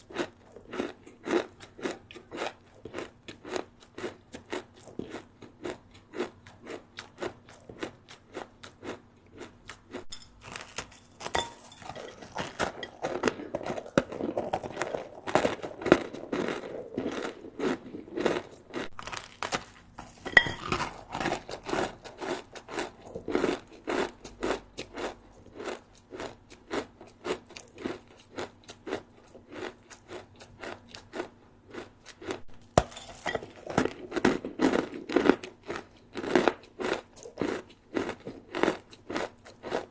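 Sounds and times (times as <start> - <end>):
chewing crispy snack: 0.0 - 39.9.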